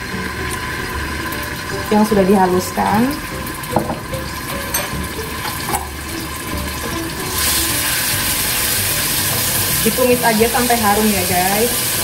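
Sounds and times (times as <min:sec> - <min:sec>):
garlic frying in oil: 0:00.0 - 0:12.0
spoon clinking: 0:03.8 - 0:05.9.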